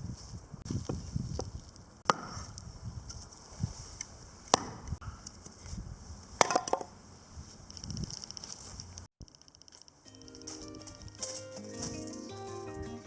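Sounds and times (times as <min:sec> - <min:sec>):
axe chopping firewood: 0:02.0 - 0:02.6, 0:04.5 - 0:04.9, 0:06.4 - 0:06.9.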